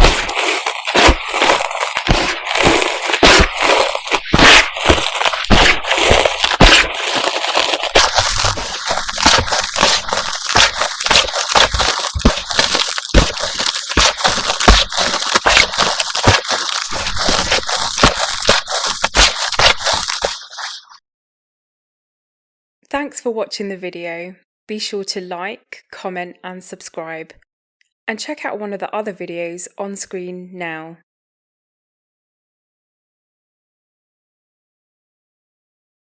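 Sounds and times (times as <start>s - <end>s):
chalk crunching and crackling: 0.0s - 21.0s.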